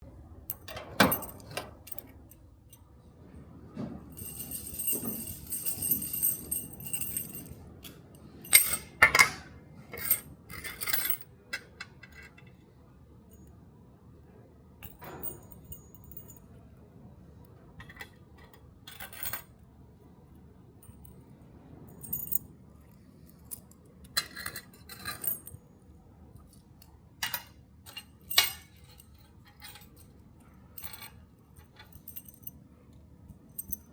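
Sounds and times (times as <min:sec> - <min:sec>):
metal keys jangling: 0:00.5 - 0:02.9, 0:04.1 - 0:09.2, 0:14.8 - 0:16.5, 0:21.9 - 0:22.4, 0:23.2 - 0:25.6, 0:27.2 - 0:32.6, 0:33.3 - 0:33.9.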